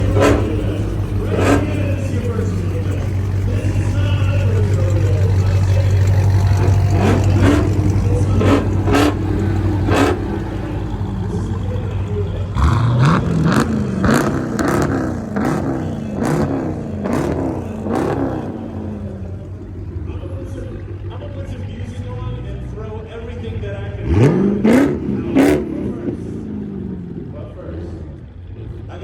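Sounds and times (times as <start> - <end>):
sharp exhaust cracks: 0.0 - 22.1
car engine idling and revving: 0.0 - 29.0.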